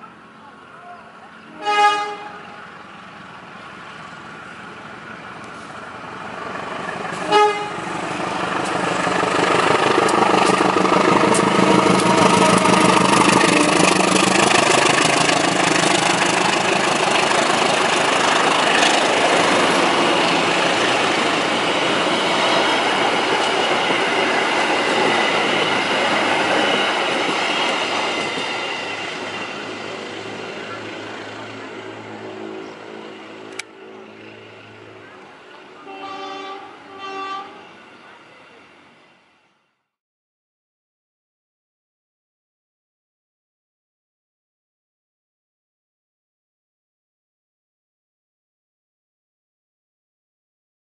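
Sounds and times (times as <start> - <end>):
diesel locomotive engine passing: 0.0 - 39.9
locomotive horn toot: 1.5 - 2.6, 7.1 - 8.0, 35.8 - 37.8
train wheels rumbling and clattering: 3.0 - 35.8.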